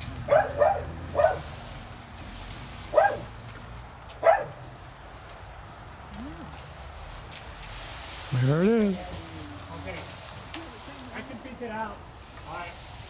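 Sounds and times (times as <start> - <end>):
dog barking: 0.3 - 1.5, 2.9 - 3.3, 4.2 - 4.6.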